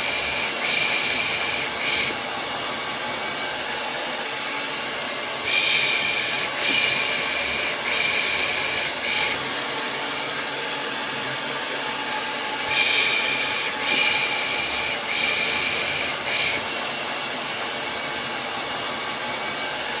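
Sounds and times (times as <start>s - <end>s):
hair dryer running: 0.0s - 20.0s.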